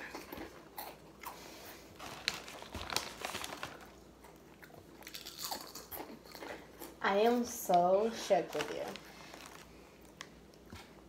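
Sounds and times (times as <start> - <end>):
crunchy snack chewing: 0.1 - 7.0.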